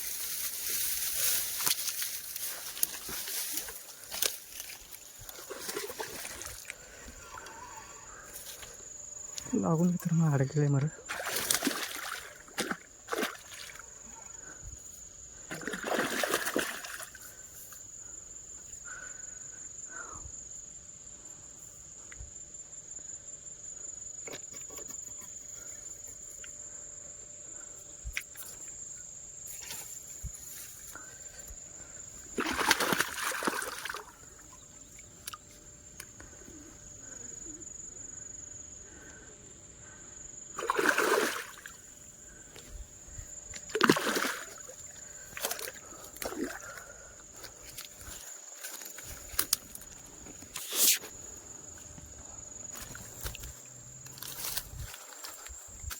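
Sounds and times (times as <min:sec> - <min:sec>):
water splashing: 0:05.3 - 0:06.7, 0:11.1 - 0:13.8, 0:15.5 - 0:17.2, 0:32.3 - 0:34.5, 0:40.6 - 0:41.8, 0:43.7 - 0:46.8.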